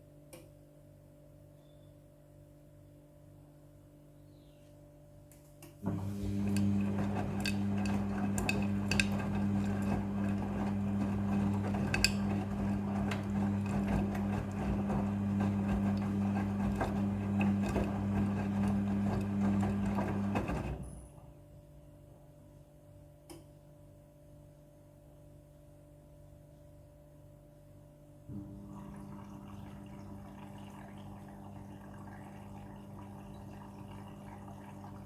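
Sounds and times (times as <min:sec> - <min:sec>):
washing machine running: 0:05.8 - 0:21.4, 0:28.3 - 0:35.0.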